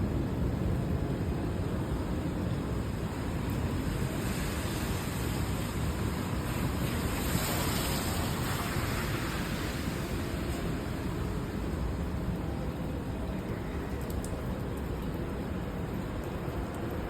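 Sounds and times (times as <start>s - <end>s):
heavy rain hissing: 1.7s - 14.6s.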